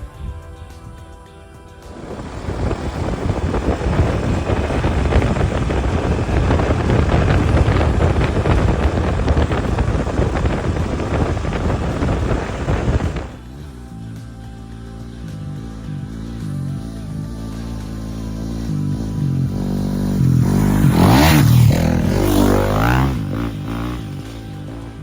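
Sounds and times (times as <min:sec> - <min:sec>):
wind buffeting microphone: 0:01.8 - 0:13.4, 0:18.9 - 0:25.0
motorcycle engine running: 0:01.8 - 0:25.0.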